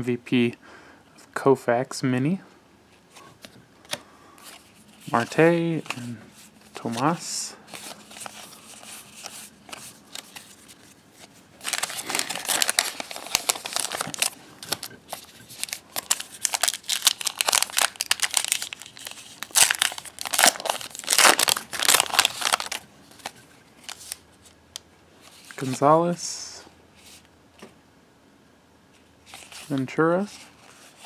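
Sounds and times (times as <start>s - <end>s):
wrapper tearing and crinkling: 11.6s - 24.2s.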